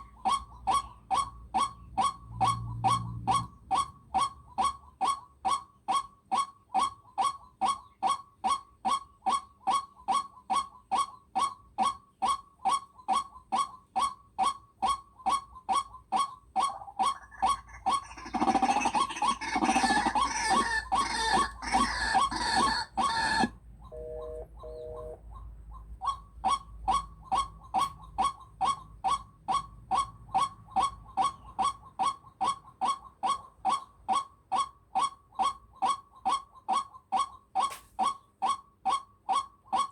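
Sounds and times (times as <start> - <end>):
brief steady tone: 23.9 - 25.2.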